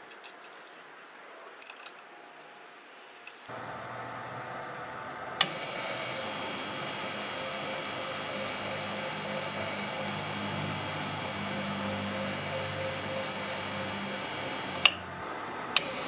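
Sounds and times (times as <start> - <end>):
machine humming: 3.3 - 16.0.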